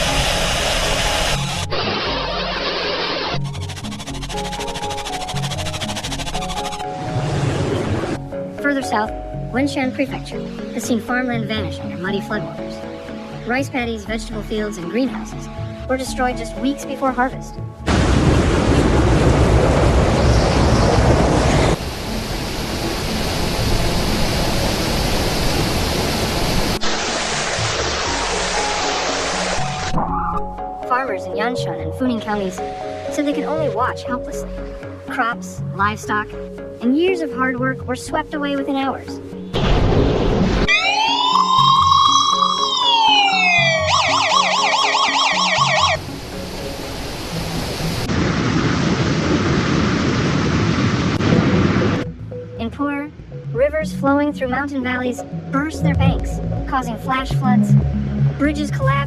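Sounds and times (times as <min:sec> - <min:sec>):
steady rushing noise: 0:17.9 - 0:29.9
emergency siren wailing and yelping: 0:40.7 - 0:46.0.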